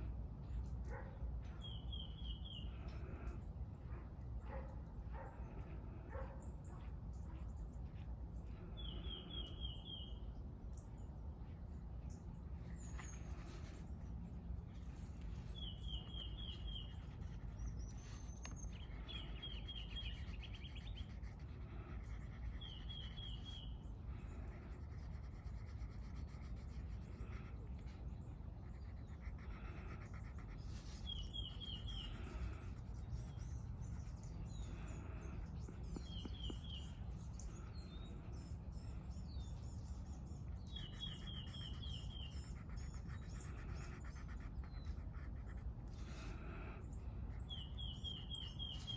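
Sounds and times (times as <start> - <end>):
bird chirping: 1.6 - 3.0, 8.7 - 13.7, 14.7 - 21.5, 22.1 - 24.4, 30.0 - 45.2, 46.9 - 48.9
low outdoor rumble: 2.4 - 48.9
colouring scratching on paper: 12.6 - 14.2, 14.8 - 23.7, 24.3 - 34.8, 40.6 - 46.3.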